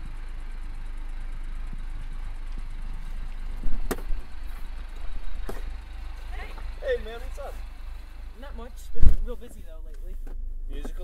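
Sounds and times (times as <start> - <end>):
car engine idling: 0.0 - 11.0
sharp knock: 3.6 - 4.2.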